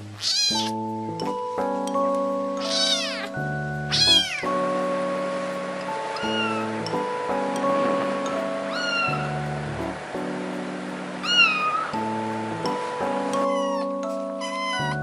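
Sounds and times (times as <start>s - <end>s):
background music with held notes: 0.0s - 15.0s
kittens meowing: 0.2s - 0.8s, 2.6s - 4.5s, 6.2s - 6.8s, 8.7s - 9.3s, 11.2s - 12.0s, 13.4s - 15.0s.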